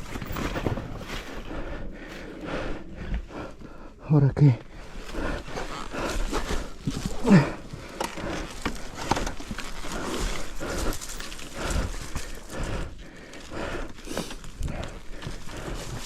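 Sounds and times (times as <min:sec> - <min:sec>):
heavy uneven breathing: 0:00.0 - 0:16.0
person groaning: 0:07.1 - 0:07.7.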